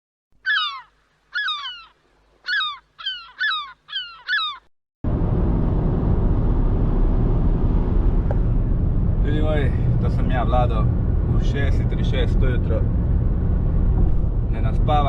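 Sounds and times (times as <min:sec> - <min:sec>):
gull calling: 0:00.4 - 0:04.7.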